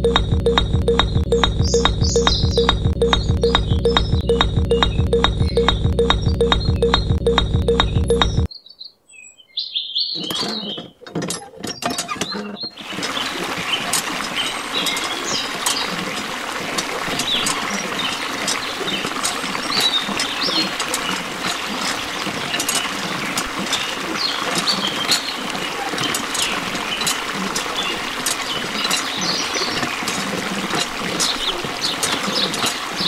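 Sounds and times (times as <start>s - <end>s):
birds chirping: 0.0s - 33.0s
pump handle clicking: 10.2s - 33.0s
water pouring into trough: 12.8s - 33.0s.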